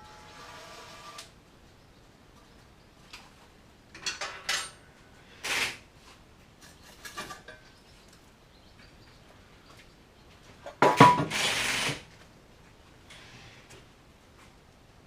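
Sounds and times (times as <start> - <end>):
metal tools clinking and scraping: 3.9 - 4.9, 6.6 - 7.7.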